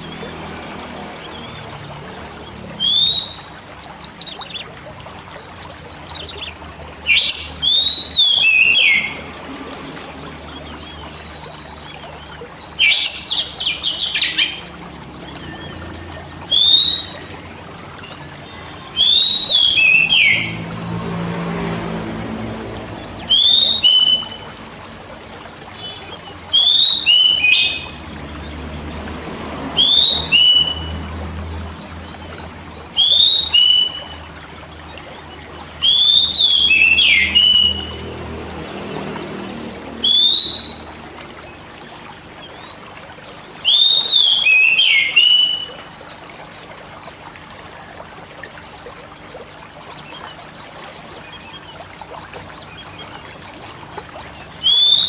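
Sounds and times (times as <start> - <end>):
bird whistled song: 2.7 - 9.3, 10.4 - 20.6, 23.0 - 28.0, 29.8 - 31.0, 32.0 - 38.0, 40.0 - 40.9, 43.6 - 45.9, 52.6 - 55.0.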